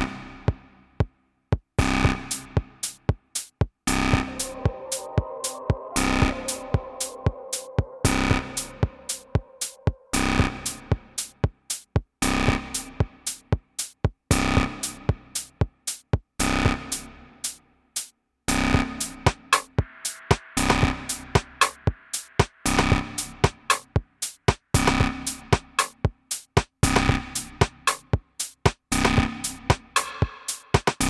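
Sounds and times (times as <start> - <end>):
electronic techno music: 3.9 - 10.8.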